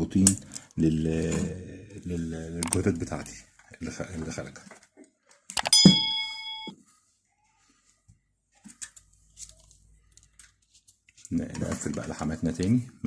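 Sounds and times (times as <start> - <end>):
sharp click: 5.5 - 5.9
electronic beep: 5.6 - 6.7.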